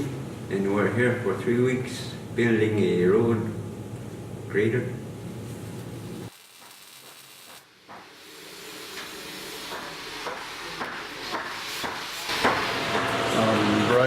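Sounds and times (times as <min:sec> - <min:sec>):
welding arc hissing: 0:06.0 - 0:14.0.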